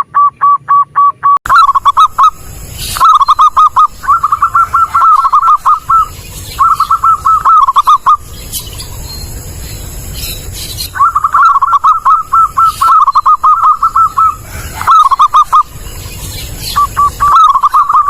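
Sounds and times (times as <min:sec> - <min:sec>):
faint high chirps: 0:00.2 - 0:18.0
dove cooing: 0:01.5 - 0:08.6, 0:10.4 - 0:18.0.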